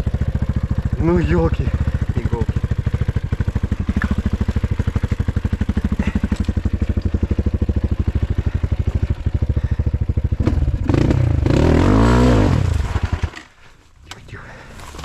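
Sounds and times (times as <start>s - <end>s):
motorcycle engine idling: 0.0s - 11.6s.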